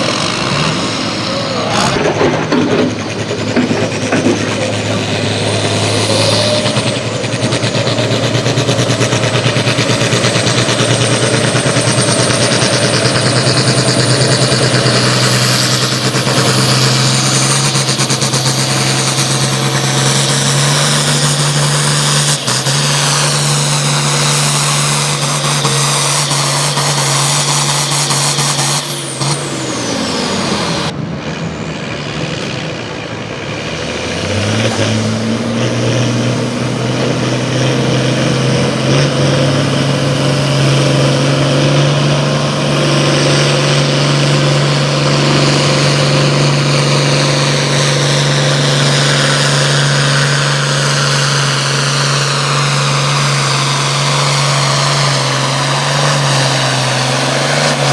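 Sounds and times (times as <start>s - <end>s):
high whine: 0.0s - 34.0s
engine running at high revs: 0.0s - 57.9s.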